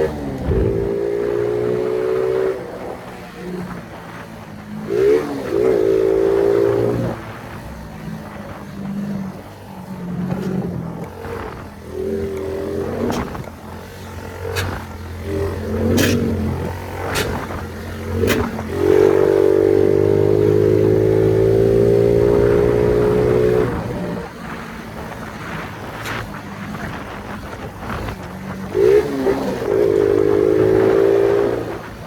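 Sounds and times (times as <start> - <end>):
moped engine revving: 0.0 - 32.0
exhaust pops: 10.2 - 19.4.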